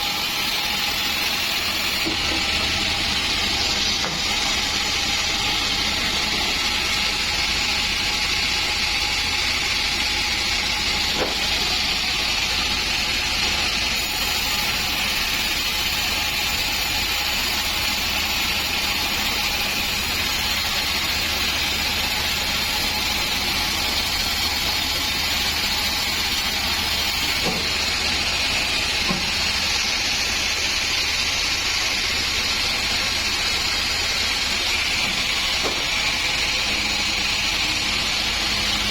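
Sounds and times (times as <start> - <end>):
band saw sawing wood: 0.0 - 38.9.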